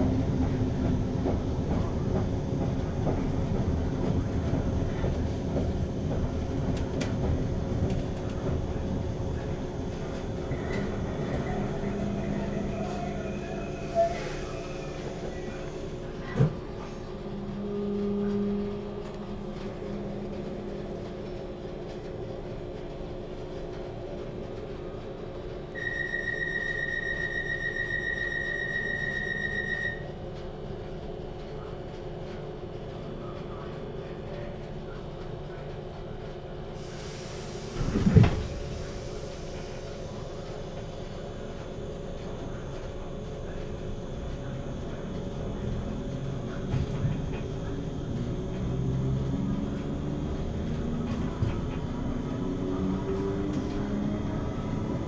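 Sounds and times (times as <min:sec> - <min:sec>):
train electrical hum: 0:00.0 - 0:55.0
high beeping alarm: 0:25.8 - 0:30.1.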